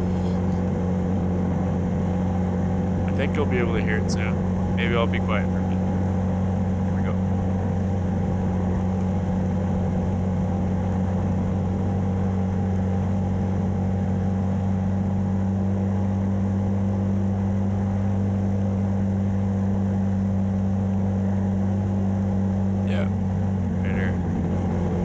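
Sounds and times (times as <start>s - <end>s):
quad engine running: 0.0s - 6.0s.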